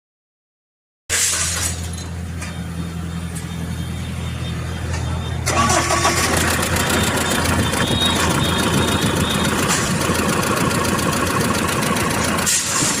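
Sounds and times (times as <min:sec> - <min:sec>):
engine idling: 0:01.7 - 0:13.0.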